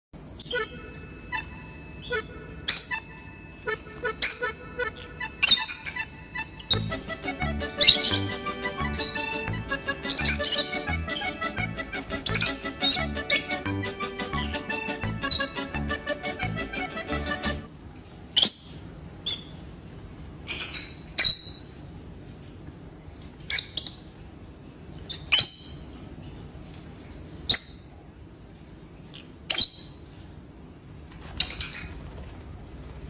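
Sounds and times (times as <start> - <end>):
high-pitched bird chirps: 0.2 - 3.3, 4.0 - 11.5, 12.1 - 13.6, 14.3 - 15.8, 18.4 - 19.6, 20.5 - 21.7, 25.1 - 25.9, 29.5 - 30.0
background music: 0.5 - 17.7.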